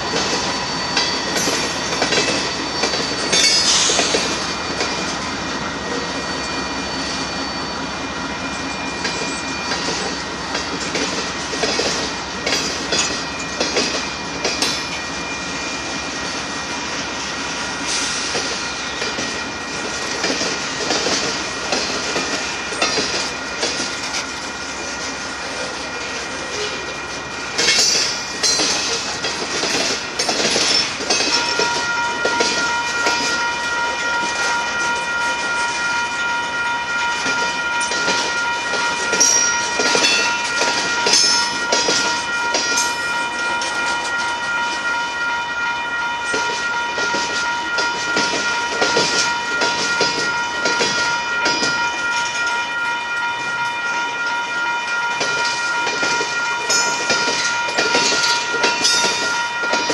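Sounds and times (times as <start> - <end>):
steady high-pitched tone: 0.0 - 28.9
freight train wheels clacking: 0.0 - 52.6, 53.3 - 59.9
train rumble and rattle: 0.0 - 59.9.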